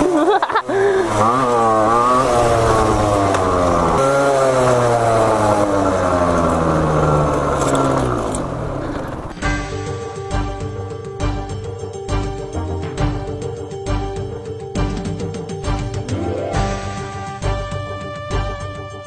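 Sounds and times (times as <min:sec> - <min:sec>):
two-stroke dirt bike engine revving: 0:00.0 - 0:09.5.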